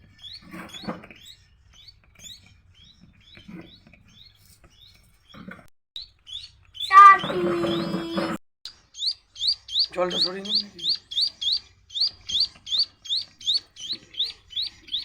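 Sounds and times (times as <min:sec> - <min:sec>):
baby finch begging chirps: 0:06.3 - 0:15.0.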